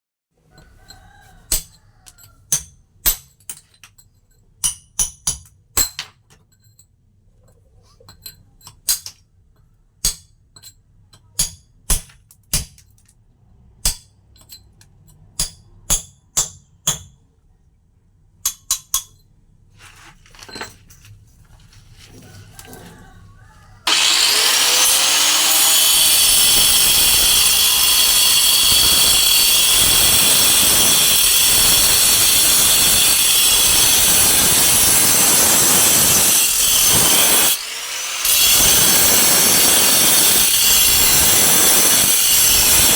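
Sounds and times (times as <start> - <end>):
hammer striking chisel on stone: 4.6 - 6.1, 10.0 - 12.9, 15.4 - 17.2
stone rubbing or scraping: 23.9 - 41.2.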